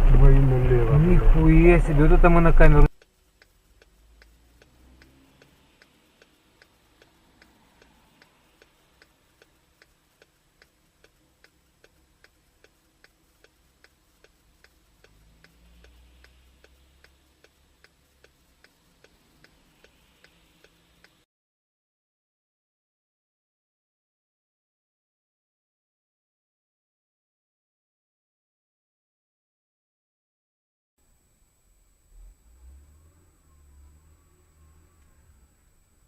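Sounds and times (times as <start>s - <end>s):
faint low rumble: 0.0s - 21.3s, 31.0s - 36.0s
faint ticking: 2.2s - 21.3s.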